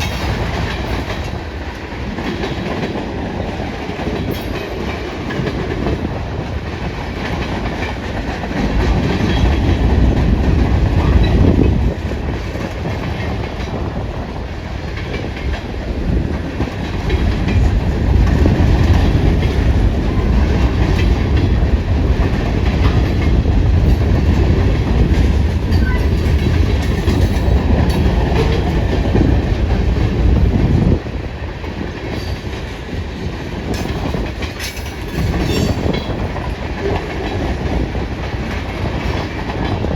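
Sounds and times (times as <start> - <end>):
train wheels clacking on rails: 0.0 - 39.9
wind buffeting microphone: 0.0 - 39.9.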